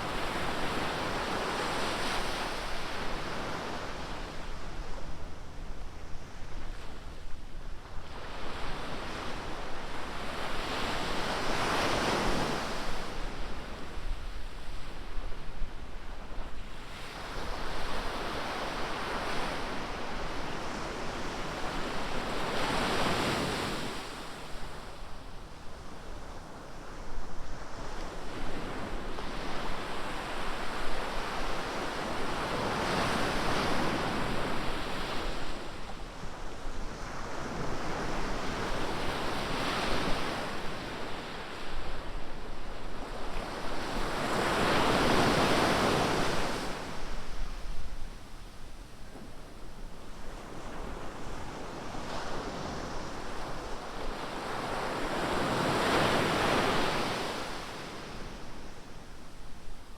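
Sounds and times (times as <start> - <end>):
ocean waves breaking on beach: 50.4 - 58.4.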